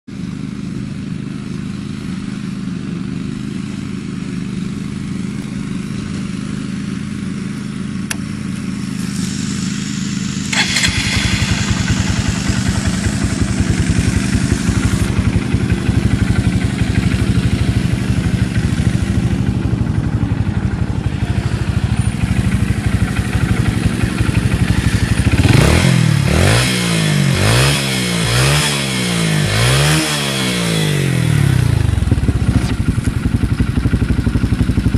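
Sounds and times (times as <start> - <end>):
motorcycle engine idling and revving: 0.0 - 34.9.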